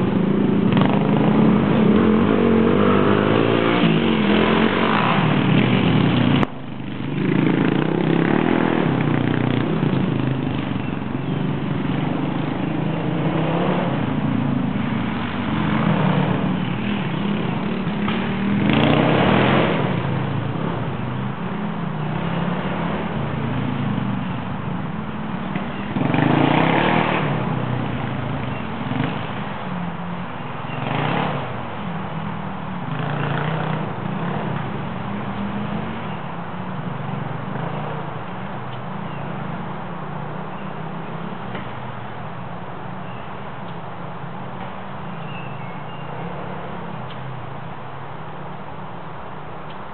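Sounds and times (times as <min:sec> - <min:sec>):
dirt bike engine revving: 0:00.0 - 0:06.4, 0:07.1 - 0:20.9, 0:25.2 - 0:31.7.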